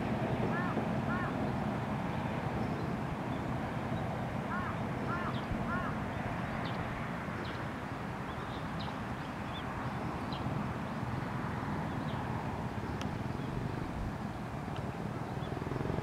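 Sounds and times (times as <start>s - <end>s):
harsh bird calls: 0.5s - 1.4s, 4.5s - 6.1s.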